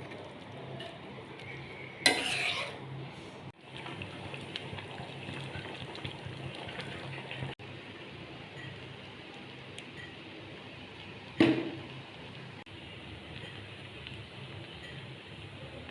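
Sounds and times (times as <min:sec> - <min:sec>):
food frying in a pan: 0:03.5 - 0:15.9.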